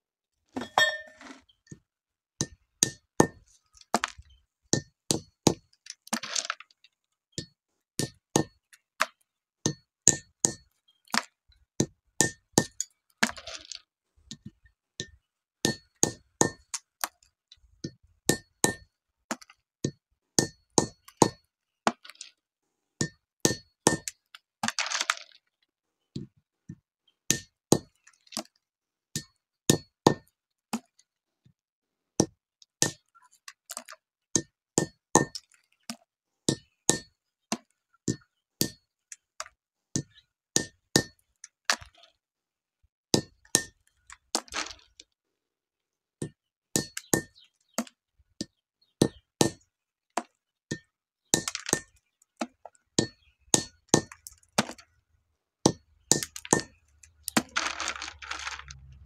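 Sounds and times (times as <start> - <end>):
rustling scrape: 57.4 - 59.0.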